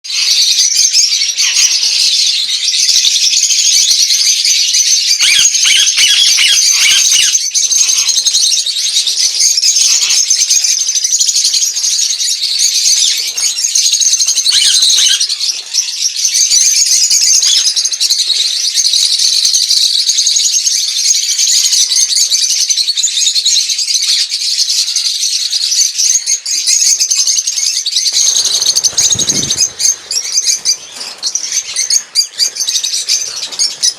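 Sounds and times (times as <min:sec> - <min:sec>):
lovebirds chattering: 0:00.1 - 0:33.9.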